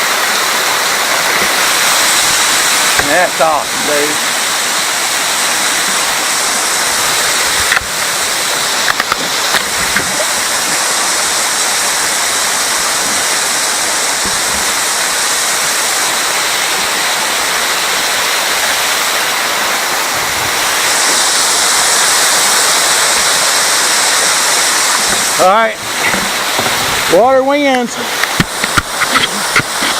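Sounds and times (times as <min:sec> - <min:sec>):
waterfall rushing: 0:00.0 - 0:29.9
sharp knocks: 0:26.0 - 0:27.0.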